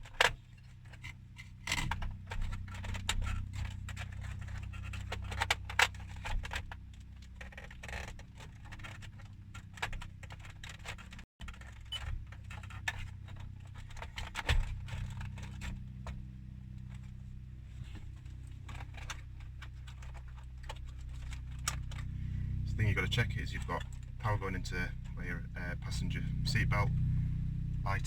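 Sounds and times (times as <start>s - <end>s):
plastic trim clicks and rattles: 0.0s - 16.2s, 17.8s - 22.1s
low steady hum: 0.0s - 28.0s.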